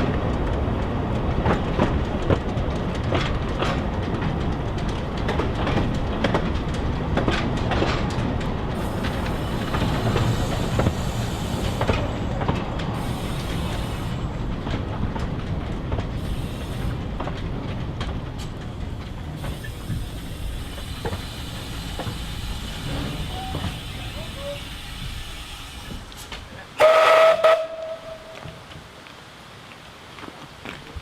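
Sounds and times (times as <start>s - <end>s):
wheels clicking over rail joints: 0.0s - 29.2s
train rumbling: 0.0s - 29.5s
high hiss: 8.7s - 12.3s, 12.9s - 14.4s, 16.2s - 17.1s, 19.2s - 28.6s.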